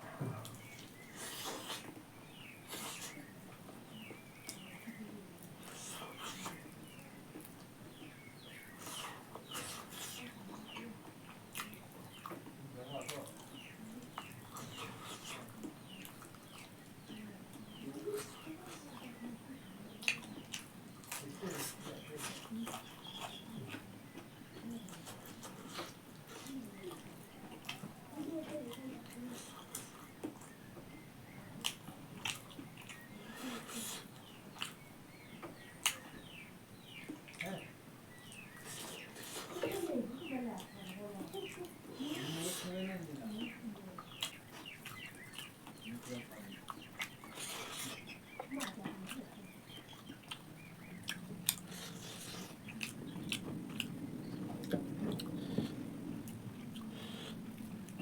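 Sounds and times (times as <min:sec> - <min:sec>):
chewing and biting food: 0:00.4 - 0:19.2, 0:19.9 - 0:58.0
mouth clicks and smacks: 0:19.9 - 0:28.0, 0:31.6 - 0:39.8, 0:44.0 - 0:58.0.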